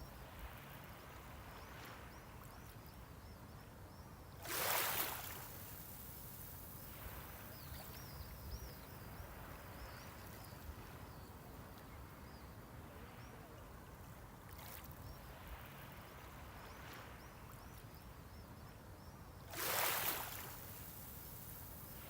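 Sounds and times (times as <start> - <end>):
small waves lapping on shore: 0.0 - 3.2, 4.3 - 22.0.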